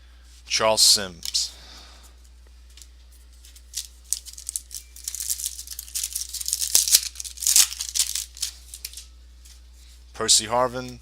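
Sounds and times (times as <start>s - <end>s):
trading cards rustling and clicking: 2.7s - 9.1s.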